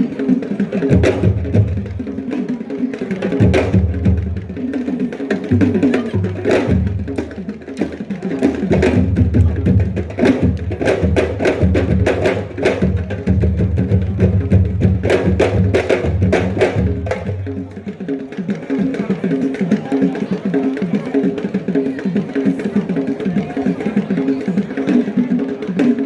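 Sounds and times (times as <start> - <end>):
fast busy drumming: 0.0 - 26.0.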